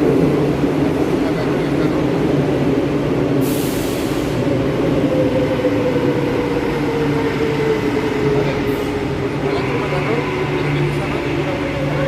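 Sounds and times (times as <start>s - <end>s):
train rumble: 0.0s - 12.0s
metro train motor whine: 4.2s - 12.0s.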